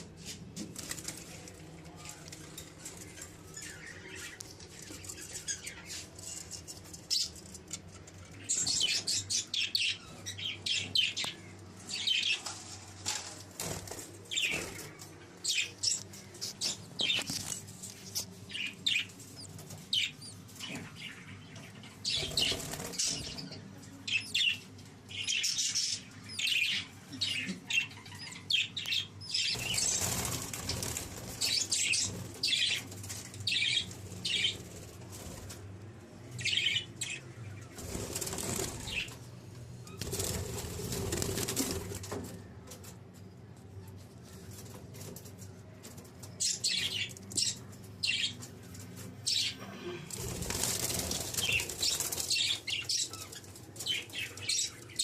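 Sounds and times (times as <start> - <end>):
wings flapping: 29.5 - 32.4, 37.8 - 39.2, 40.0 - 42.4, 50.1 - 52.8.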